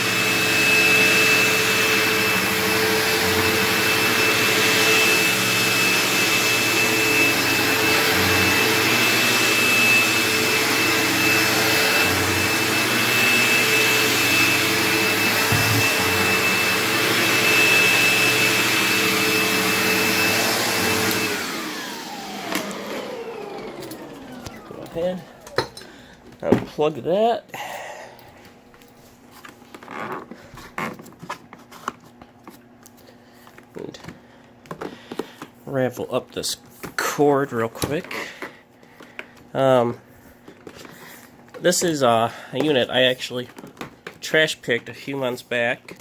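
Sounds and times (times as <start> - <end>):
vacuum motor winding down: 0.0 - 26.0
vacuum cleaner running: 0.0 - 26.5.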